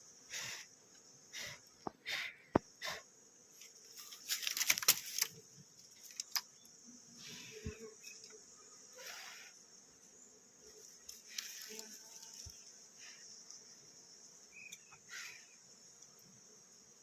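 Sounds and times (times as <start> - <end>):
crickets chirring: 0.0 - 17.0
rustling: 3.6 - 6.4.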